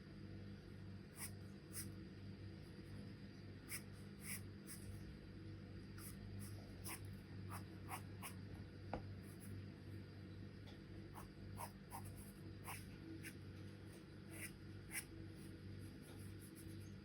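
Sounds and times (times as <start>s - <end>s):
pencil scratching on paper: 14.3s - 15.1s.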